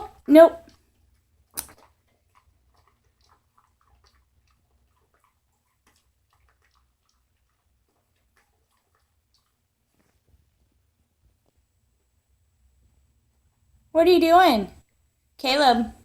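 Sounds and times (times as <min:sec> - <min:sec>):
dog chewing bone: 0:00.2 - 0:10.4.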